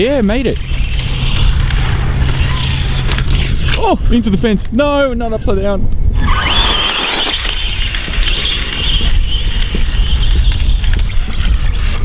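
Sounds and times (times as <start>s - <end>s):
electric motor high whine: 0.0s - 4.2s
wind rumble on microphone: 0.0s - 12.0s.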